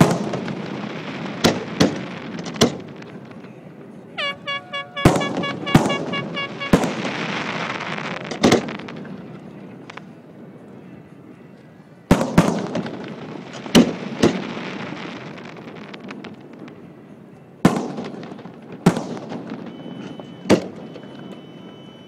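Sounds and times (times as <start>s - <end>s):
firework shells booming with echo: 0.0s - 3.4s, 4.2s - 10.1s, 12.1s - 16.9s, 17.6s - 21.2s
faint firework pops: 1.4s - 3.3s, 5.0s - 9.1s, 12.1s - 14.6s.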